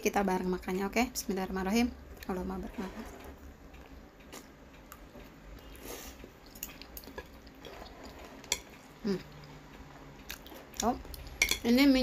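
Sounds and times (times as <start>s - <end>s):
person chewing food quietly: 2.1s - 11.6s.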